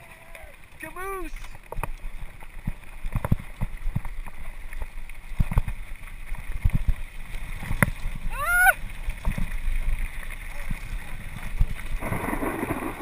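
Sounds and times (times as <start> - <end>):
tyres rumbling on trail: 0.0 - 13.0
wind on microphone: 5.3 - 13.0.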